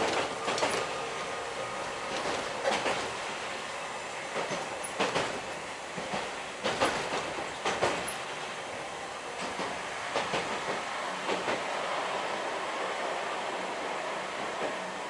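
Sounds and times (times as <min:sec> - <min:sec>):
streetcar rolling rumble: 0:00.0 - 0:15.0.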